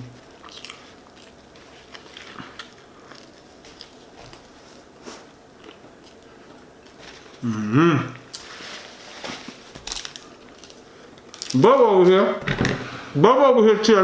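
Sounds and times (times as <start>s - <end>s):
person chewing food: 0.2s - 7.4s.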